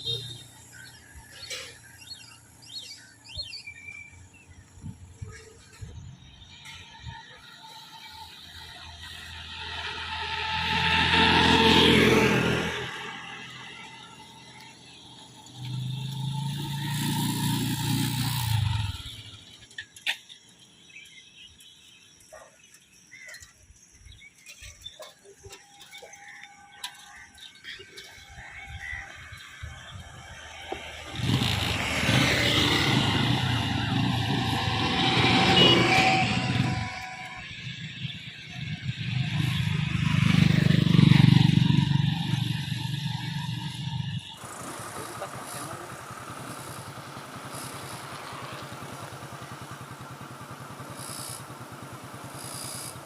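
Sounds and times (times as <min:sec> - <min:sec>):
motorcycle engine running: 0:10.3 - 0:19.6, 0:29.7 - 0:53.0.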